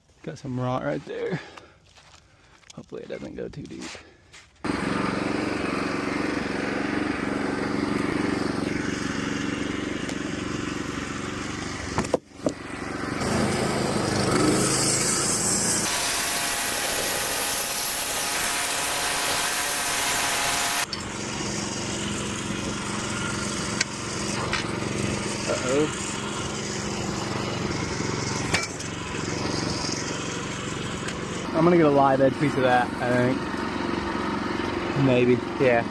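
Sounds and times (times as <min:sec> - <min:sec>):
sawmill engine running: 0:04.6 - 0:35.9
saw blade cutting log: 0:11.0 - 0:35.3.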